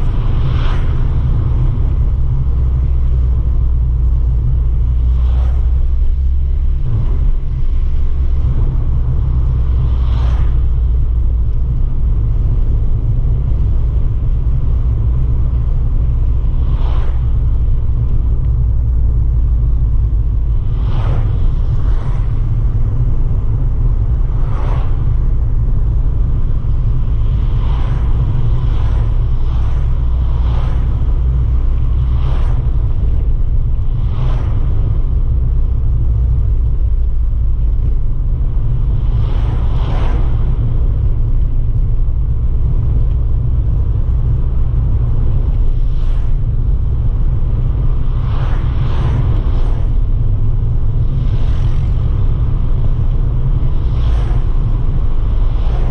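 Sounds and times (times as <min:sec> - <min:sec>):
car engine droning: 0:00.0 - 0:55.9
short whooshes: 0:09.7 - 0:10.9, 0:16.6 - 0:17.4, 0:20.5 - 0:26.4, 0:27.1 - 0:35.0, 0:39.0 - 0:41.9, 0:47.6 - 0:55.9.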